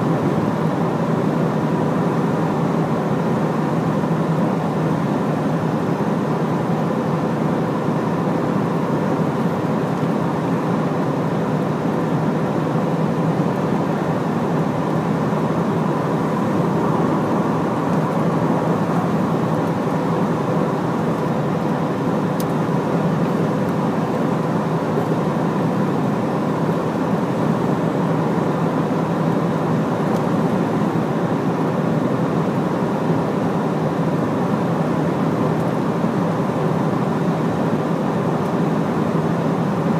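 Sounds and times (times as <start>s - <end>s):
truck engine hum: 6.7s - 39.7s.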